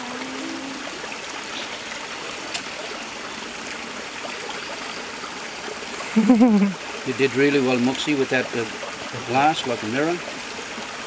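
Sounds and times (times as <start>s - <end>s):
stream flowing over rocks: 0.0s - 11.0s.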